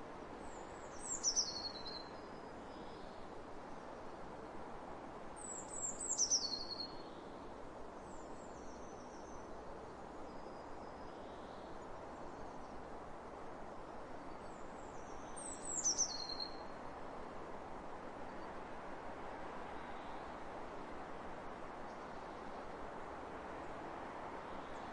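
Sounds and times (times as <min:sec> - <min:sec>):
songbird singing: 0:00.4 - 0:03.2, 0:05.4 - 0:07.2, 0:14.2 - 0:16.8.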